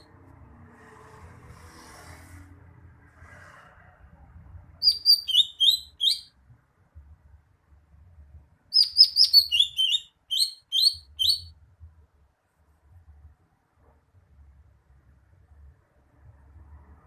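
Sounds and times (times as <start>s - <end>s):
bird chirping rapidly: 4.8s - 6.4s, 8.7s - 11.6s.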